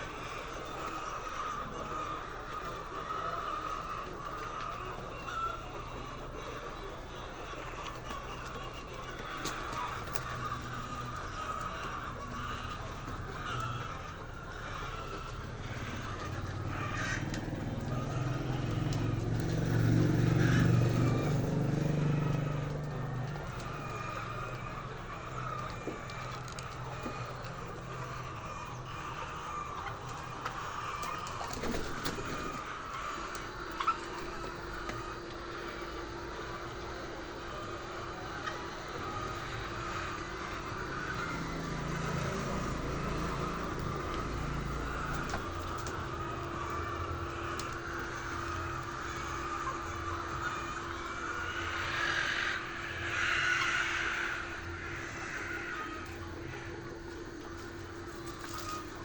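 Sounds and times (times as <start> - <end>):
vehicle engine passing: 8.2 - 59.0.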